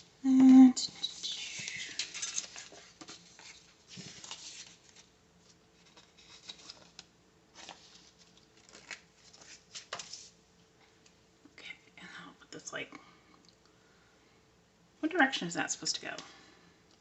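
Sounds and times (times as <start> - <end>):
faint paper rustling: 0.4 - 11.2.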